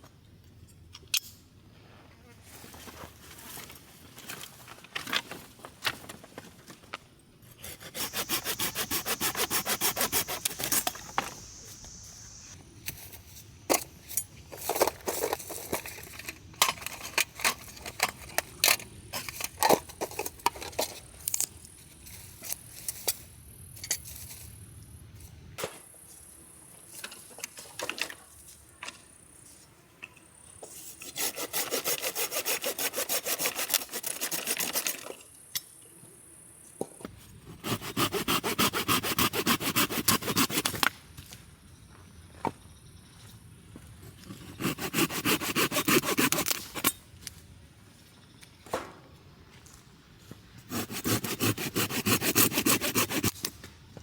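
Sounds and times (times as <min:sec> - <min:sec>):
hand saw cutting wood: 0:07.6 - 0:11.9, 0:31.0 - 0:35.1, 0:37.5 - 0:40.9, 0:44.3 - 0:47.0, 0:50.7 - 0:53.4.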